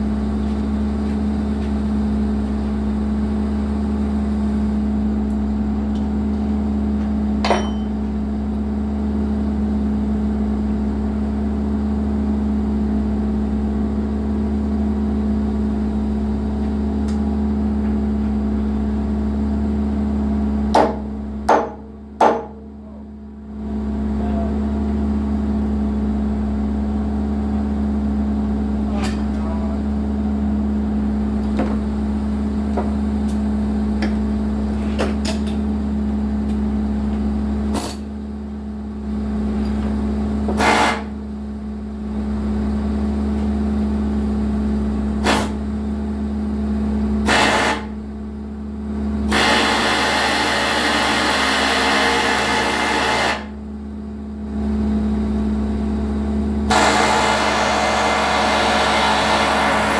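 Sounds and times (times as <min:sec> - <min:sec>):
excavator diesel engine running: 0:55.3 - 0:59.9
loud hiss: 0:56.7 - 0:59.9.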